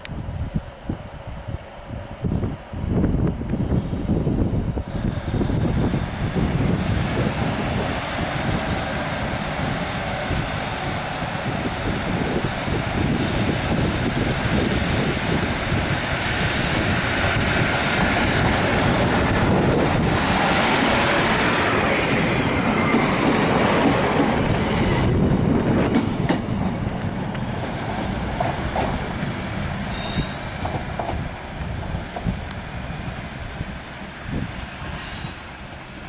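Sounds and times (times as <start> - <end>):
diesel train engines: 0.0 - 36.0
train wheels clattering on rails: 7.2 - 34.1
high wheel squeal: 9.2 - 9.9, 29.9 - 30.5.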